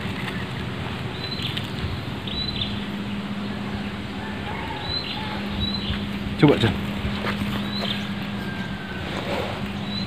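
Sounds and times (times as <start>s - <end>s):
high bird chirp: 1.1s - 3.6s, 4.2s - 6.1s, 7.0s - 10.0s.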